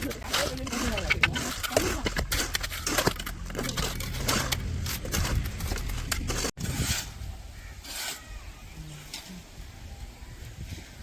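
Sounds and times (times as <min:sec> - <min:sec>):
scraping and clicking of concrete tools: 0:00.0 - 0:08.4.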